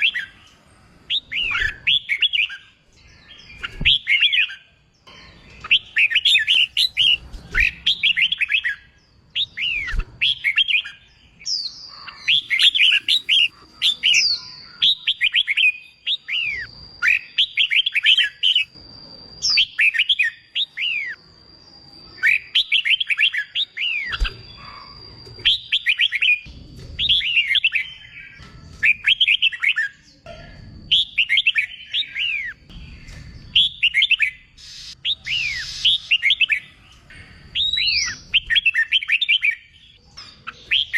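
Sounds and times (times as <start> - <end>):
bulbul song warbling: 3.6 - 11.0, 11.9 - 18.8.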